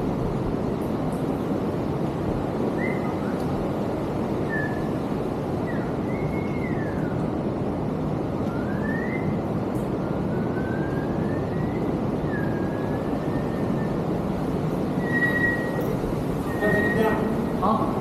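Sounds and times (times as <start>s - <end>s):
faint thin whistle: 8.4s - 14.1s, 15.0s - 17.5s.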